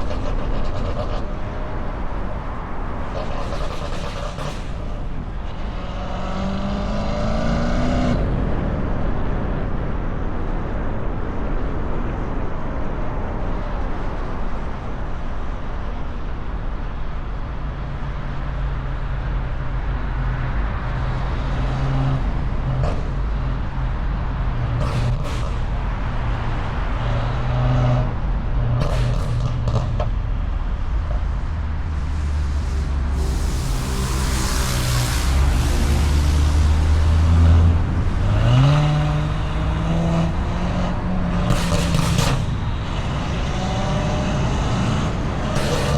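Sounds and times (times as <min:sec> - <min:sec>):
road and traffic noise: 0:00.0 - 0:45.9
car engine running: 0:22.4 - 0:45.9.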